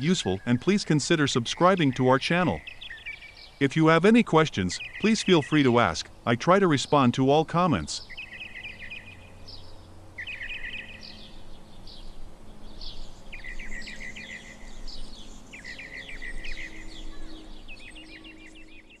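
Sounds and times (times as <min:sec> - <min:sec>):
songbirds trilling: 0:00.0 - 0:19.0.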